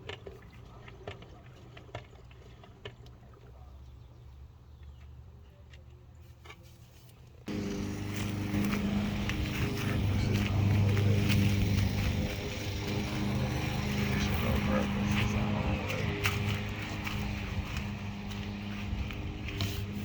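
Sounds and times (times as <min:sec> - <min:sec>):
car engine running: 0:07.5 - 0:20.0.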